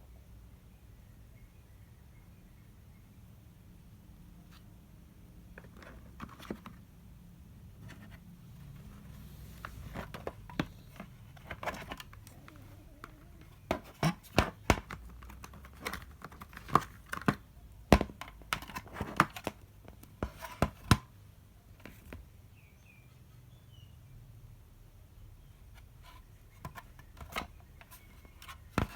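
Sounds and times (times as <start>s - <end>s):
packaging crinkling and rustling: 7.8s - 17.4s
hard objects clicking and knocking: 9.6s - 21.0s, 26.6s - 28.9s.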